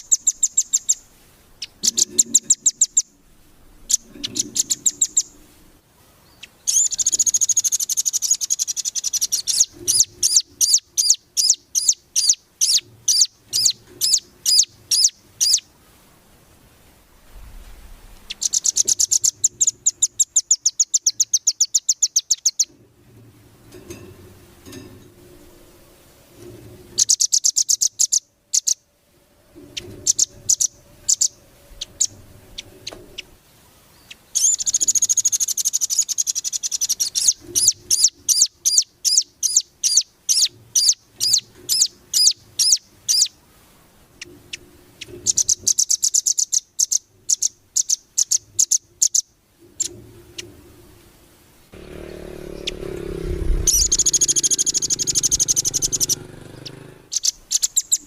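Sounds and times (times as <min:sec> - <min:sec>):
bird calling in high trills: 0:03.8 - 0:05.4, 0:06.4 - 0:15.7, 0:18.3 - 0:22.7, 0:29.7 - 0:33.4, 0:34.0 - 0:43.4, 0:44.5 - 0:49.9, 0:52.4 - 0:58.0.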